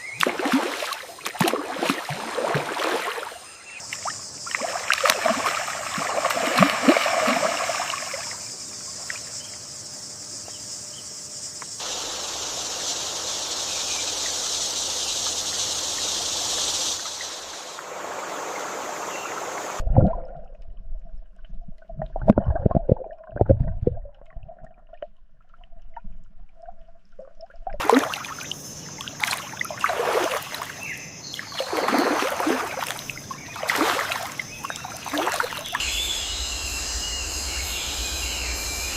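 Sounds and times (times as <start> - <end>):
water splashing and sloshing: 0.0 - 9.3, 14.8 - 38.9
river water flowing and trickling: 0.0 - 9.7, 11.8 - 20.5, 23.0 - 38.9
sharp low splashes: 0.1 - 8.4, 31.5 - 38.9.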